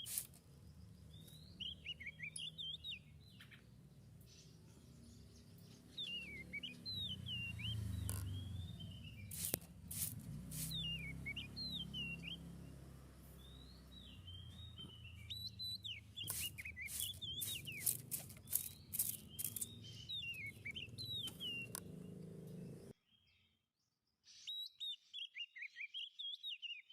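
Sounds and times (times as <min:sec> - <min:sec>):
songbird singing whistled phrases: 0:01.1 - 0:03.6, 0:05.8 - 0:09.5, 0:10.6 - 0:12.8, 0:13.4 - 0:21.8, 0:24.3 - 0:26.9
sharp clicks: 0:09.3 - 0:10.8, 0:16.2 - 0:22.6.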